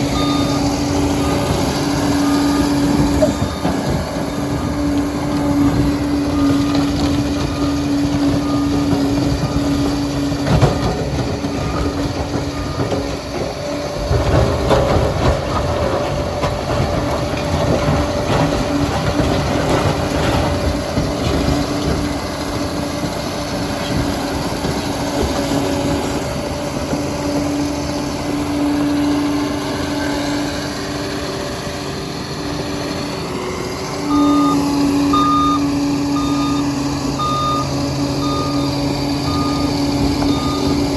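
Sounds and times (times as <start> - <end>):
reversing alarm beeps: 0.0 - 13.7, 34.1 - 40.9
bulldozer engine under load: 0.0 - 40.9.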